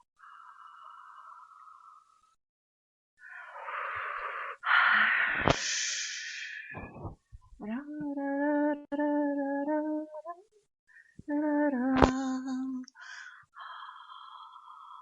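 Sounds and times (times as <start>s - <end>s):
breathy hissing: 3.2s - 6.8s
woman singing held notes: 11.2s - 13.0s.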